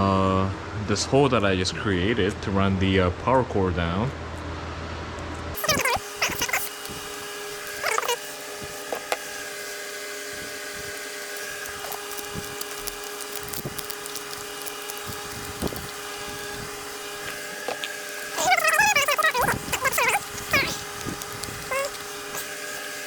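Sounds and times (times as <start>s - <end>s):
steady multi-tone hum: 0.0s - 23.0s
tape taps and crackles: 10.4s - 22.9s.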